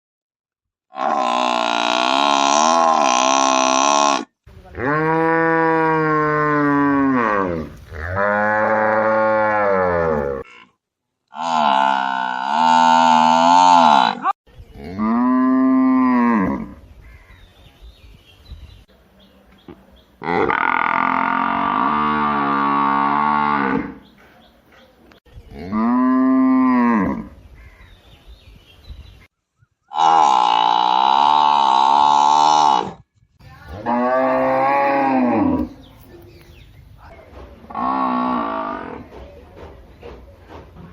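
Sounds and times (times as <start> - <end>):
cows mooing: 33.8 - 35.8.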